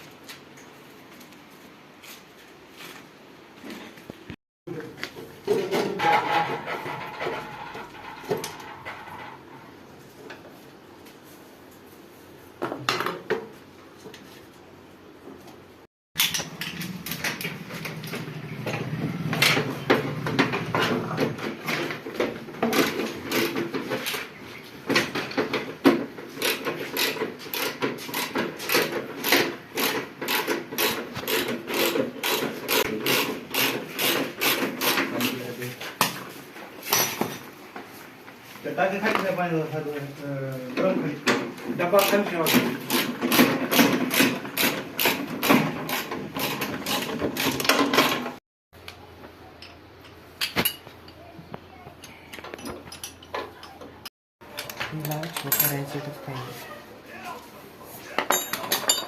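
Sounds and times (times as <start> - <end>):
metal objects clinking and scraping: 5.4 - 9.8, 52.0 - 53.9, 54.5 - 56.4, 58.0 - 59.0.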